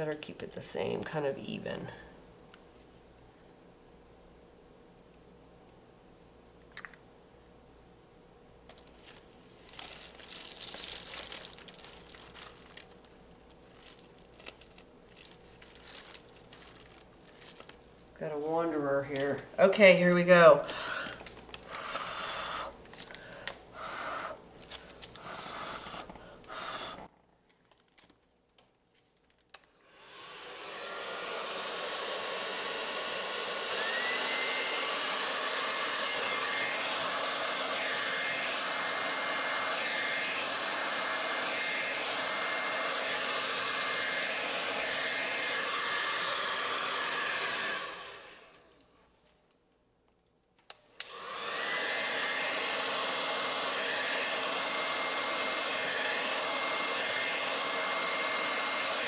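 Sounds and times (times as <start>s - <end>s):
hair dryer blowing: 18.2s - 27.1s, 29.8s - 48.8s, 50.8s - 59.0s.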